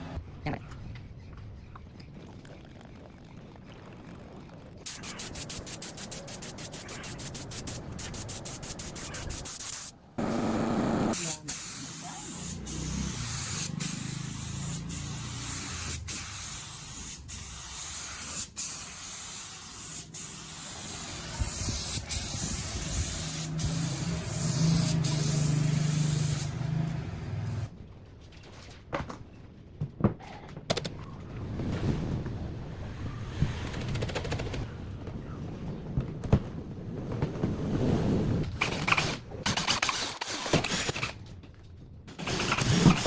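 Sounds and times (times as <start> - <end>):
spray gun hissing: 4.9 - 26.6.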